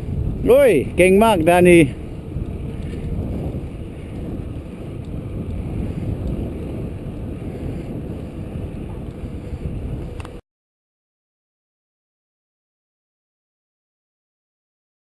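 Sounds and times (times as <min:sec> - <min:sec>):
bicycle rolling noise: 0:00.0 - 0:10.4
wind buffeting microphone: 0:00.0 - 0:10.4.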